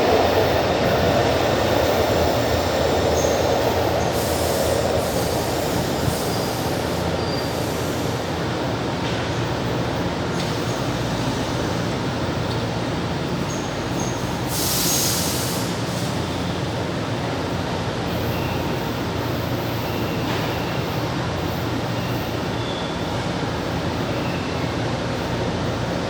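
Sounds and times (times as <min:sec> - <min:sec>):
metro train rumble: 0:00.0 - 0:26.0
burst of hiss: 0:14.5 - 0:16.1.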